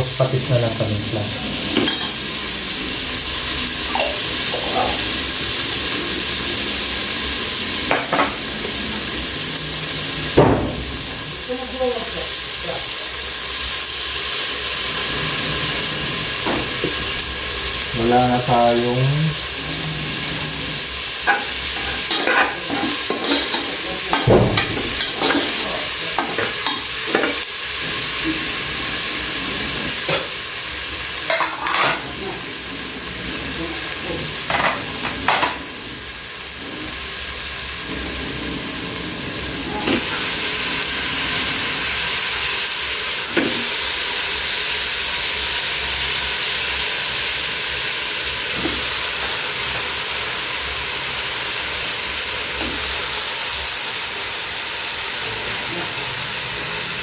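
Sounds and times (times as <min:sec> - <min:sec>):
food sizzling in oil: 0:00.0 - 0:57.0
utensils clattering: 0:01.6 - 0:02.2, 0:19.7 - 0:27.4, 0:31.3 - 0:32.2, 0:34.4 - 0:35.6.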